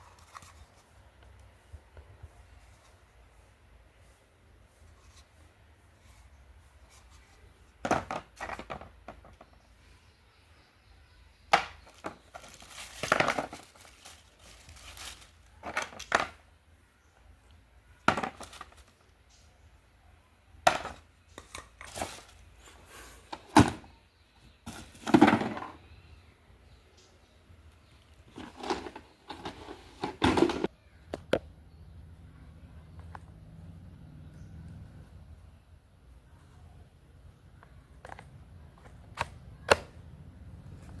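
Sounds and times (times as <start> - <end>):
clatter and crinkling: 7.8 - 9.5, 11.8 - 16.4, 18.0 - 19.0, 28.3 - 30.7.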